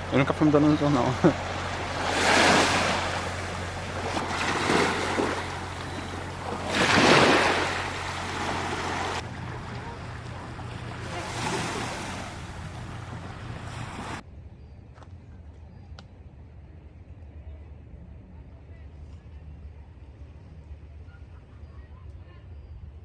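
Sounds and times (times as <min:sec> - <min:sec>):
sea waves washing in: 0:00.0 - 0:14.2
low hum: 0:00.0 - 0:15.6.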